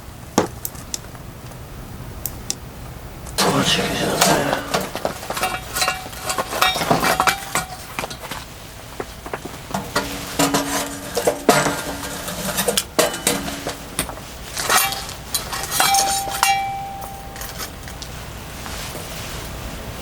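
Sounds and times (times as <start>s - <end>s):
metal cookware clinking: 3.4s - 8.3s, 9.7s - 18.0s
metal ringing notes: 10.2s - 13.9s, 14.7s - 18.0s.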